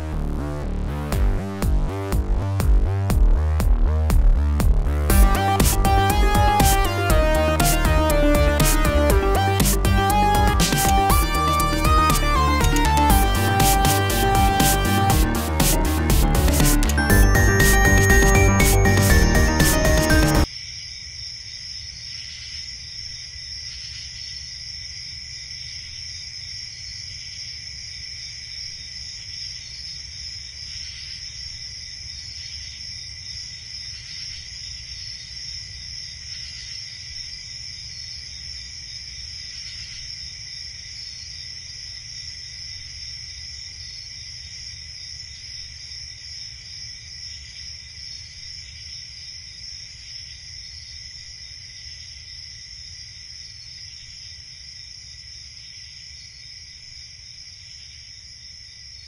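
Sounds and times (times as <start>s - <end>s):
crickets chirping: 20.4s - 59.0s.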